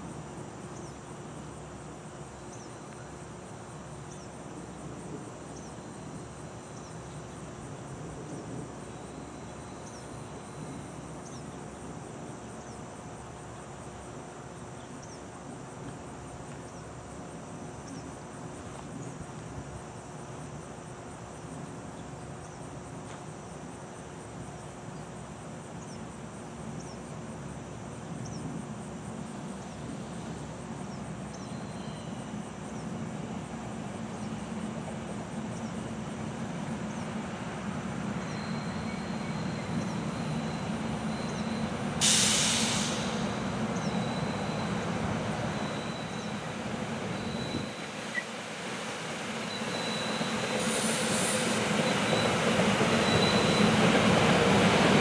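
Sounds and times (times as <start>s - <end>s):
electric train rumble: 0.0s - 55.0s
faint high whine: 0.0s - 55.0s
short sharp hiss: 42.0s - 43.5s, 50.4s - 51.9s.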